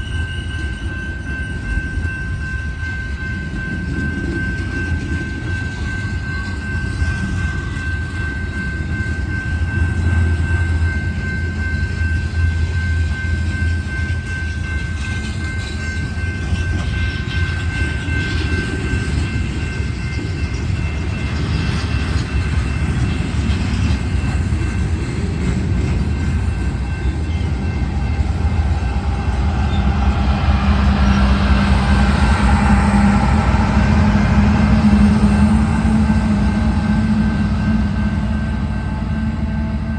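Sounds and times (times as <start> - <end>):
train wheels rumbling on rail: 0.0 - 39.9
high-pitched squeal: 26.9 - 39.9.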